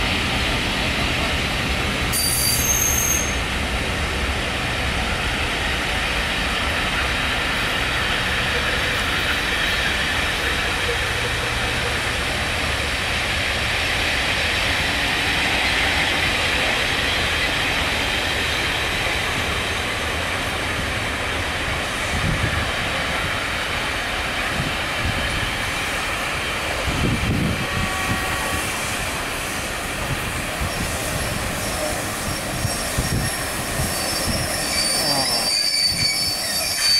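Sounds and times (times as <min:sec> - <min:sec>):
train wheel rumble: 0:00.0 - 0:36.9
faint high squeal: 0:02.1 - 0:03.4, 0:31.6 - 0:36.9.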